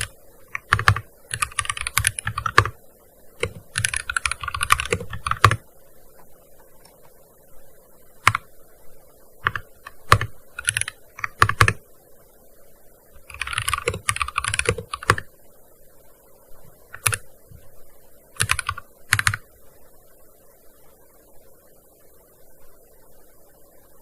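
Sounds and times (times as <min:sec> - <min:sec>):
typing on a keyboard: 0:00.0 - 0:02.8, 0:03.4 - 0:05.6, 0:08.2 - 0:08.5, 0:09.4 - 0:11.8, 0:13.3 - 0:15.3, 0:17.0 - 0:17.2, 0:18.4 - 0:19.4.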